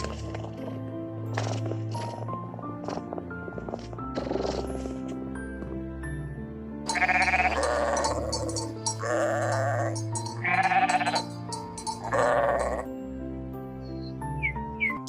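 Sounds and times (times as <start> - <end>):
background music sustained notes: 0.0 - 15.0
farm animal bleating: 6.9 - 12.9.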